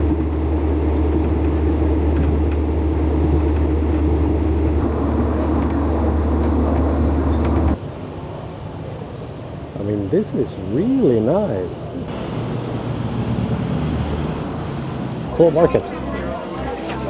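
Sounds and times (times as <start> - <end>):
moving vehicle rumble: 0.0 - 7.8, 11.8 - 17.0.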